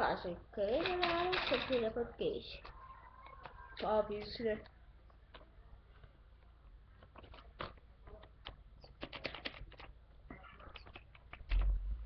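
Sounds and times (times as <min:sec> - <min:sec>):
plastic toy track pieces clicking: 0:00.7 - 0:02.0.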